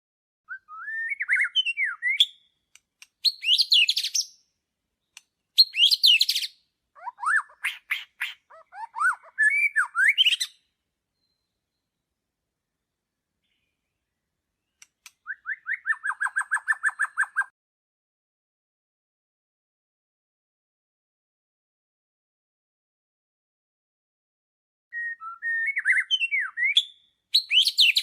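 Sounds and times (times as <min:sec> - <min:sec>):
songbird singing: 0:00.5 - 0:17.5, 0:24.9 - 0:28.0.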